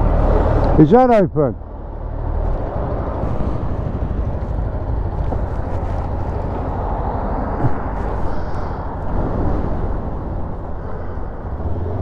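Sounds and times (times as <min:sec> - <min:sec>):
motorcycle engine rumble: 0:01.6 - 0:12.0
wind on microphone: 0:02.4 - 0:12.0.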